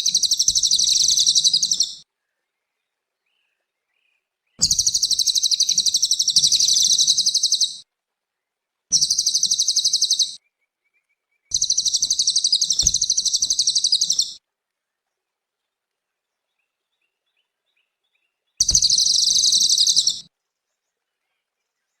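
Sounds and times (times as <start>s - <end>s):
bird chattering trills: 0.0s - 2.0s, 4.6s - 7.8s, 11.5s - 14.4s, 18.6s - 20.2s.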